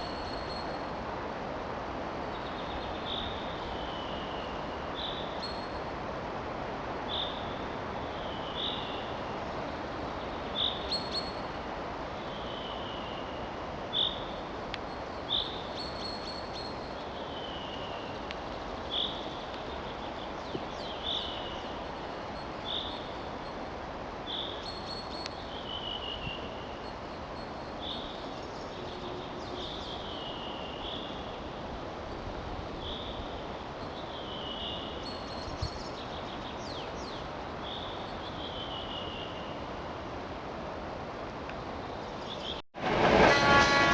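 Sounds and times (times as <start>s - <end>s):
small birds calling: 12.2s - 23.6s
steady rushing noise: 42.8s - 43.9s.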